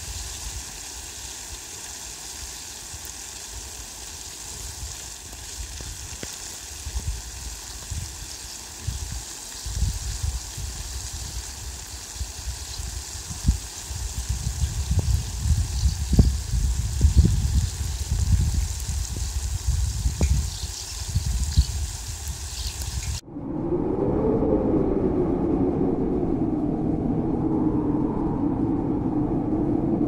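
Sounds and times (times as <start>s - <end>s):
steady rain hissing: 0.0s - 23.2s
low rumbles: 23.2s - 30.0s.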